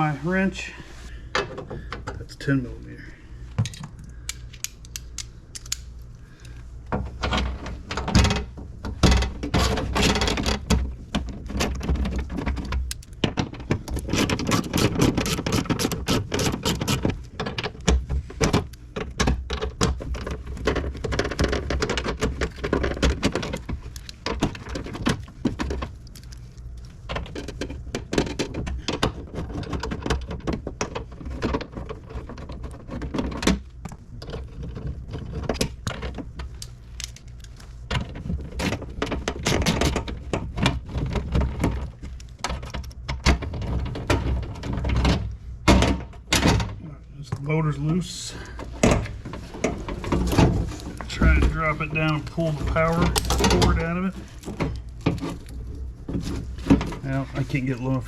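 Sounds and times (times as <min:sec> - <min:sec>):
metal tool clatter: 0:53.0 - 0:53.9.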